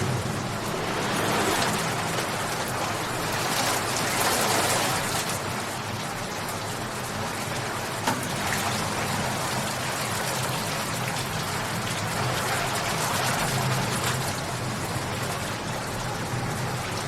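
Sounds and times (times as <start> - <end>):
rain pattering: 0.0 - 17.0.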